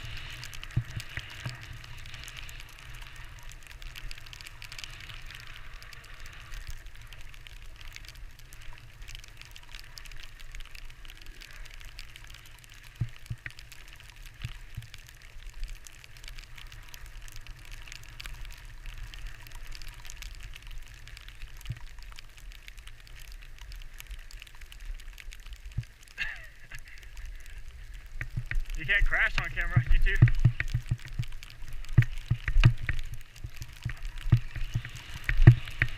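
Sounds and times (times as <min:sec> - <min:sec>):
skis hissing over snow: 0:00.0 - 0:13.0, 0:31.6 - 0:35.9
wind rumbling on microphone: 0:26.5 - 0:35.9.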